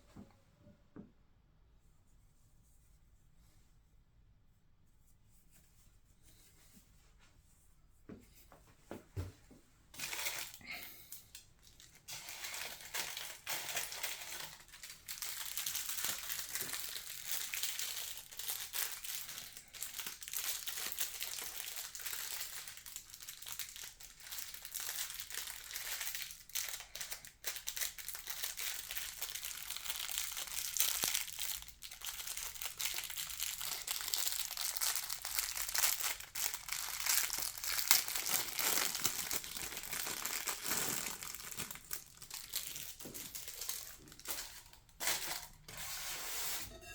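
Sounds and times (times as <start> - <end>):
packaging crinkling and rustling: 9.9 - 46.1.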